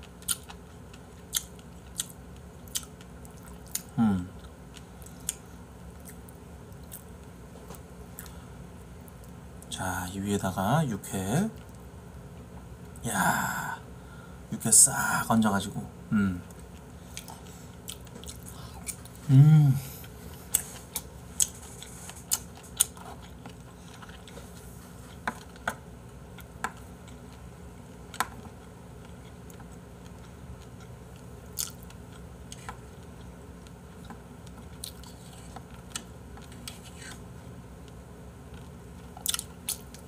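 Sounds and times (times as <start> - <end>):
person chewing wetly: 0.0 - 5.4, 8.1 - 8.4, 16.5 - 19.2, 20.0 - 25.7, 28.0 - 37.2, 37.8 - 40.0
person humming: 4.0 - 4.4, 16.1 - 16.5, 18.6 - 20.1.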